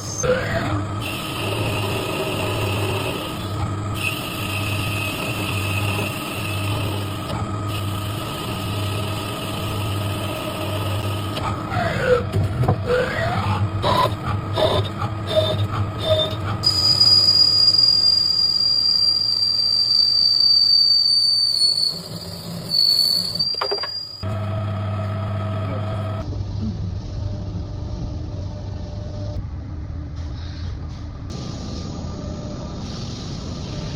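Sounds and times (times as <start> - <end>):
high-pitched cutter whine: 0.0 - 12.2, 12.8 - 26.2
machine cutting metal: 0.3 - 18.0.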